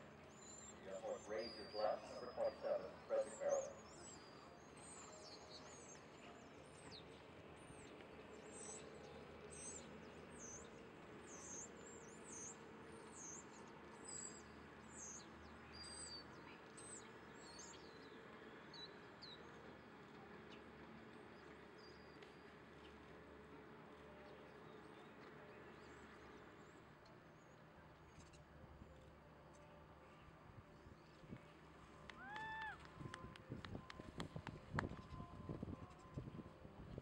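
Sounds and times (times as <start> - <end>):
faint bird chirping: 0.3 - 7.2.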